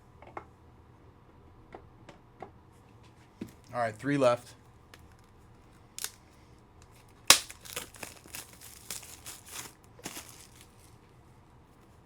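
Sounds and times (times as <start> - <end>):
plastic packaging crinkling: 7.3 - 11.0.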